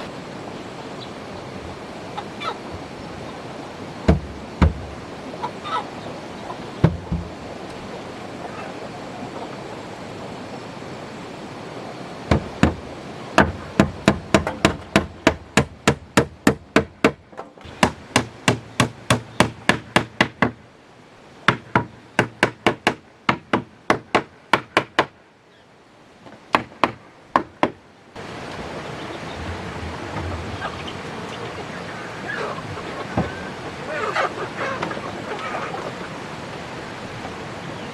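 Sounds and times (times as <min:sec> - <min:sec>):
hammer striking wood: 0:04.1 - 0:04.9, 0:06.8 - 0:07.3, 0:12.3 - 0:12.8, 0:13.4 - 0:20.6, 0:21.5 - 0:25.2, 0:26.5 - 0:27.8.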